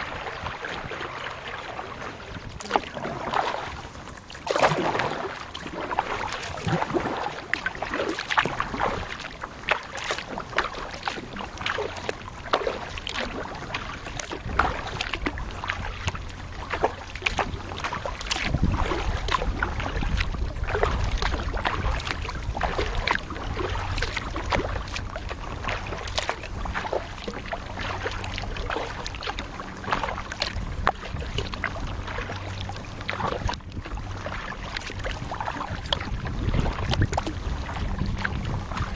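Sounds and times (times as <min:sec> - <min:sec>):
kayak paddle splashing water: 0:00.0 - 0:38.9
low rumble: 0:14.5 - 0:38.9.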